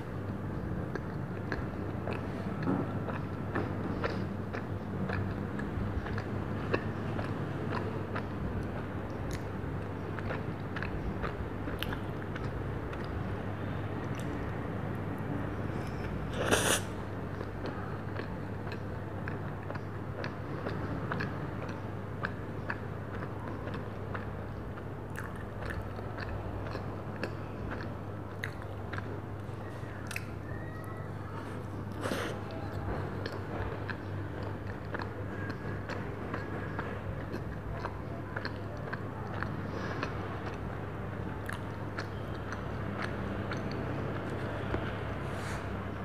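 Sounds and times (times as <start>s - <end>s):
low steady hum: 0.0s - 46.0s
person chewing soft food: 0.0s - 46.0s
wet mouth clicks and smacks: 30.0s - 30.3s.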